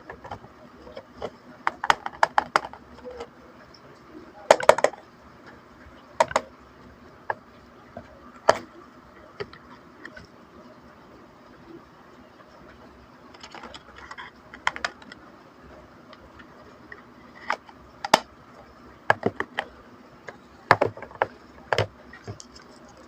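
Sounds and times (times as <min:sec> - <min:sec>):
plastic pieces clicking: 0:13.4 - 0:15.2.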